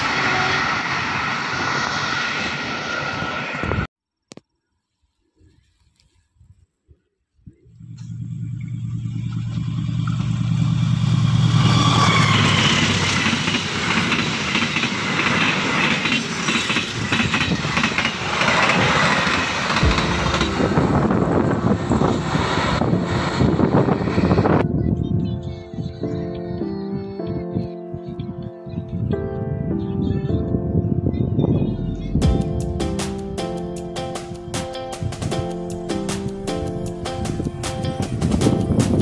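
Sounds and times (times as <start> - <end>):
train engine hum: 0.0 - 3.9, 7.6 - 24.6, 32.5 - 39.0
wheels rumbling and clacking: 7.8 - 24.6.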